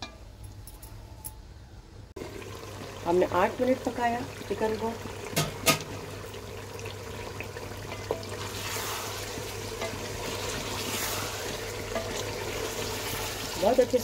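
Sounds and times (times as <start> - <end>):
food sizzling in oil: 2.2 - 14.0
wooden spoon stirring pot: 7.1 - 14.0.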